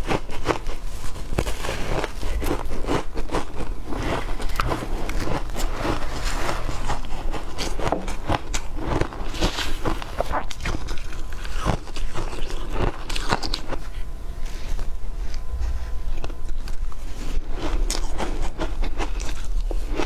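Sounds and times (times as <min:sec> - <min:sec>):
ice crunching in mouth: 0:00.1 - 0:14.0.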